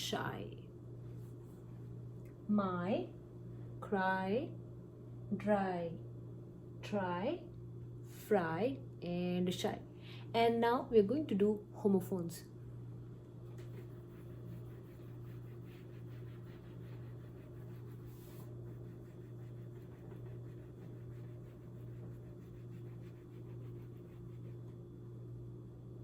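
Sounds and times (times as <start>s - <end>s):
low electrical hum: 0.0s - 26.0s
pen scratching while writing: 13.6s - 24.6s.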